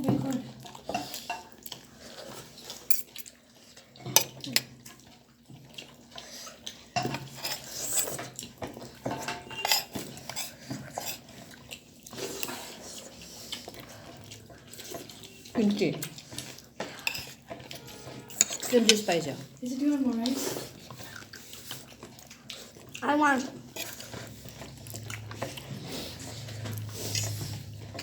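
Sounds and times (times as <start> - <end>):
cutlery clinking on plates: 4.0 - 4.7, 7.0 - 11.2, 16.4 - 19.1.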